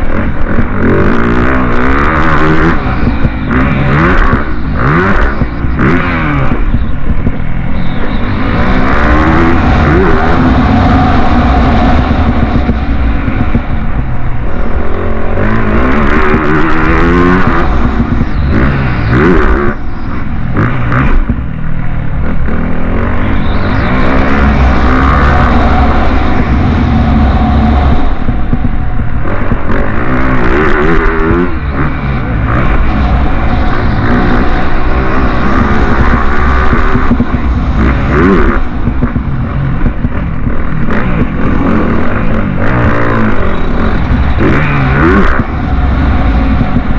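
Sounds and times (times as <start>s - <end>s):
motocross bike engines revving: 0.0s - 46.9s.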